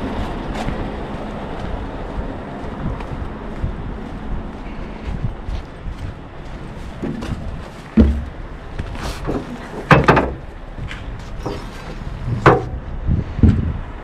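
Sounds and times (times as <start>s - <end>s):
low steady rumble: 0.0s - 14.0s
sharp knocks and bangs: 7.0s - 10.5s, 12.3s - 13.7s.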